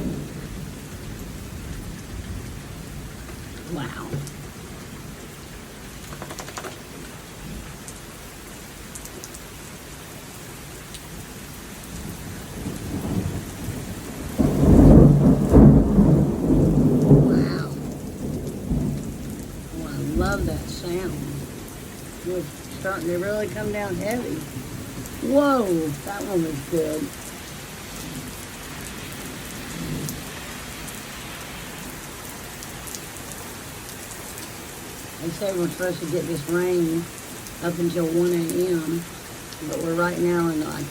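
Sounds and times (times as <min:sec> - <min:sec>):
rumble of thunder: 0:00.0 - 0:05.2, 0:11.8 - 0:27.2, 0:28.0 - 0:30.6
heavy rain: 0:00.0 - 0:40.9.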